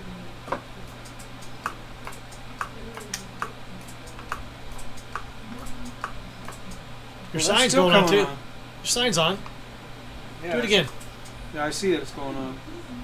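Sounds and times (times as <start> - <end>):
turn signal flasher clicking: 0.9 - 6.8.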